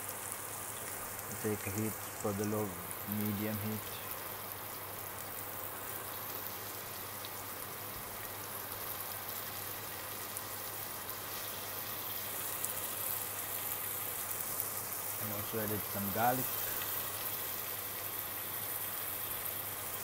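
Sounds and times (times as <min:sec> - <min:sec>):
onions sizzling in oil: 0:00.0 - 0:20.0.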